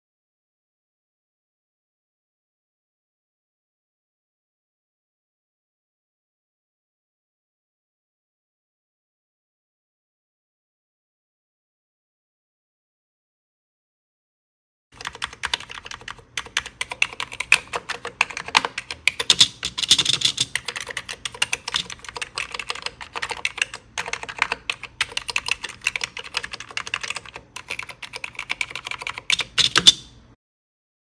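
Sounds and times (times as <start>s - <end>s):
fast typing on keyboard: 15.0s - 30.1s.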